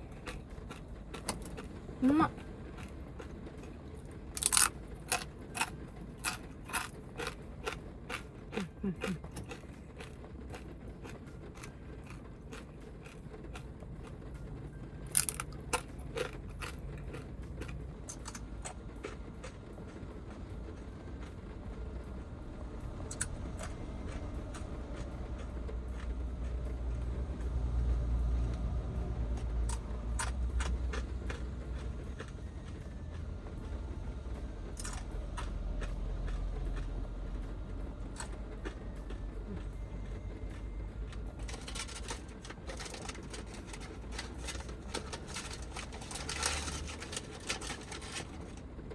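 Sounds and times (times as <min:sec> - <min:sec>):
heavy rain and wind on van: 0:00.0 - 0:48.9
crisp crackle: 0:41.4 - 0:48.7.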